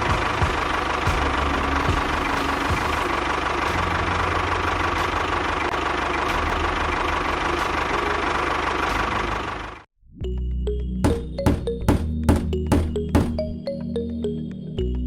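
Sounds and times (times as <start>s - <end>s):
small engine running: 0.0s - 9.9s.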